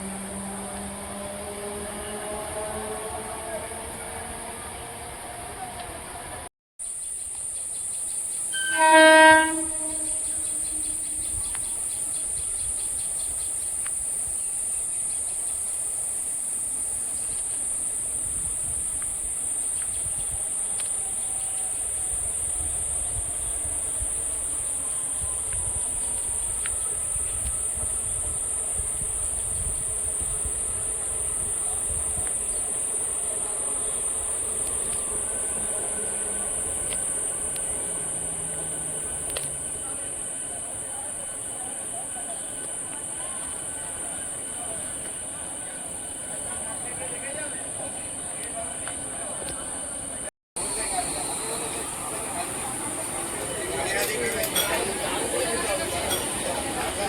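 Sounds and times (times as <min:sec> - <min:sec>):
train horn: 0:00.0 - 0:06.5, 0:08.5 - 0:12.3, 0:20.0 - 0:49.0
train wheels rumbling on rails: 0:00.0 - 0:06.5, 0:07.2 - 0:57.0.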